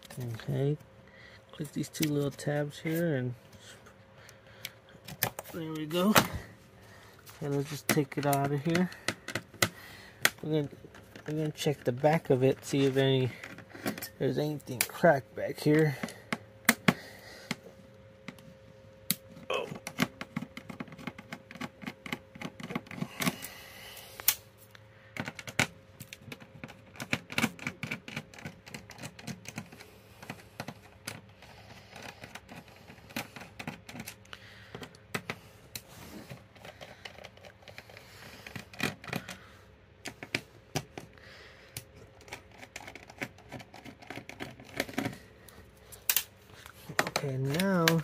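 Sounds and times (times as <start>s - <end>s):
faint steady hum: 0.0s - 48.0s
clicks and rattles of plastic clips: 7.3s - 15.0s, 45.9s - 48.0s.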